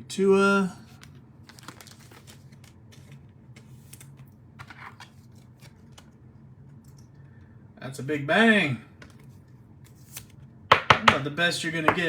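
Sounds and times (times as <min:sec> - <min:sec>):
trading cards clicking and rustling: 0:00.9 - 0:07.1.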